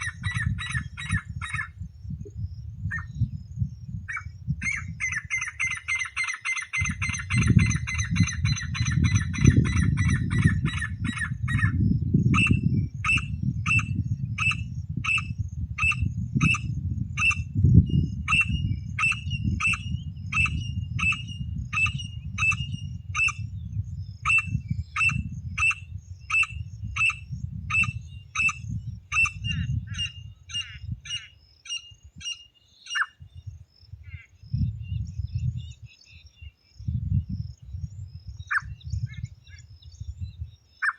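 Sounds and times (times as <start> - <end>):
francolin calling: 0.0 - 1.9, 2.9 - 23.6, 24.2 - 36.6, 38.4 - 40.9
steady low rumble: 0.0 - 5.0.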